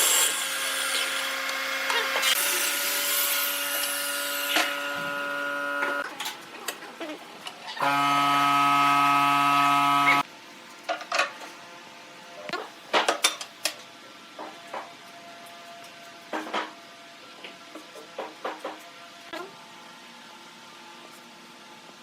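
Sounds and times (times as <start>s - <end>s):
small motor humming: 0.0s - 6.0s, 7.8s - 10.2s.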